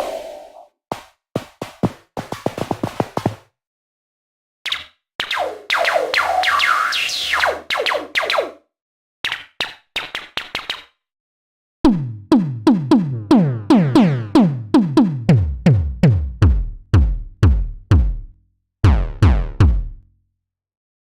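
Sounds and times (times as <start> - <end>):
synth tom hits: 11.9 - 20.0.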